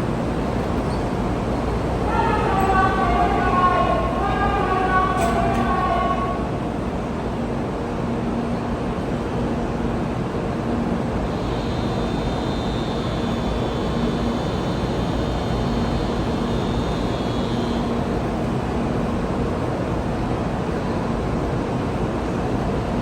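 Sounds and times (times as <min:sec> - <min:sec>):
faint high whine: 0:11.2 - 0:18.5.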